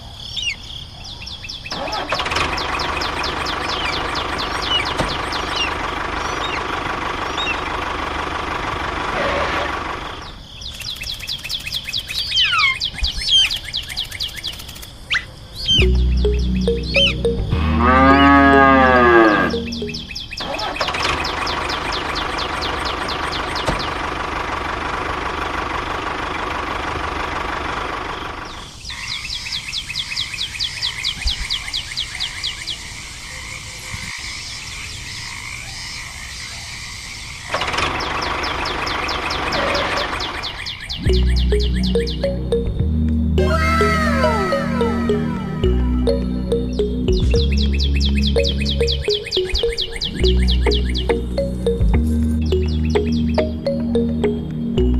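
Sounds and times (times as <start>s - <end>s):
cow mooing: 17.6s - 19.6s.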